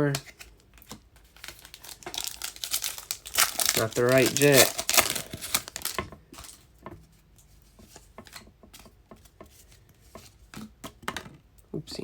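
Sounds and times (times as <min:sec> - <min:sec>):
cards being flipped: 0:00.1 - 0:06.6.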